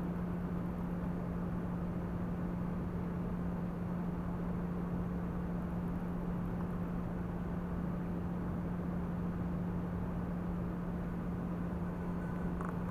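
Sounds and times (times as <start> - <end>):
steady low hum: 10.3 - 12.9.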